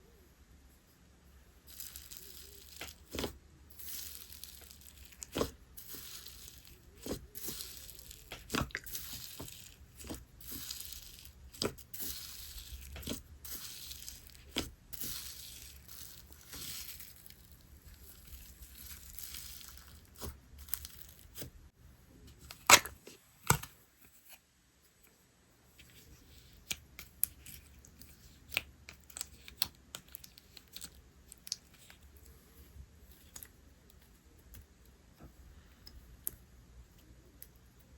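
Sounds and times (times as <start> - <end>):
slime crackling and tearing: 1.7 - 21.5.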